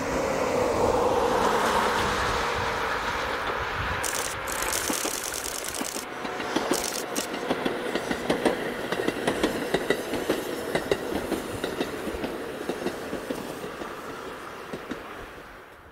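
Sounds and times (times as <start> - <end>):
electric train wheels clacking: 4.0 - 14.0.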